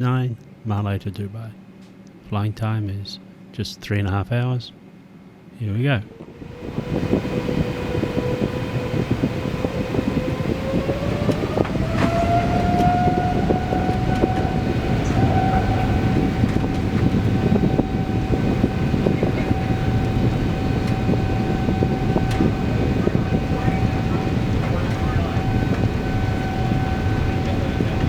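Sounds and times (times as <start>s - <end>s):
jet engines spooling up: 5.6s - 28.0s
rumble and rattling on runway: 6.1s - 28.0s.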